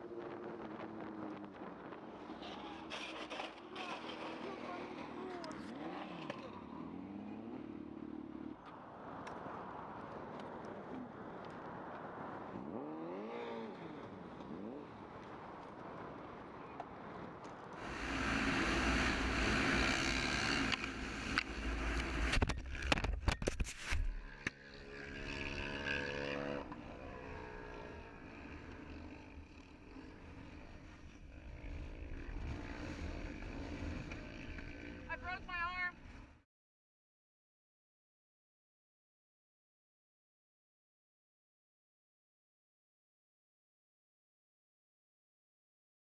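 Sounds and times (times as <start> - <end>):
vehicle engines running: 0.0 - 23.4, 24.1 - 36.4
sharp knocks and scraping: 20.5 - 24.6.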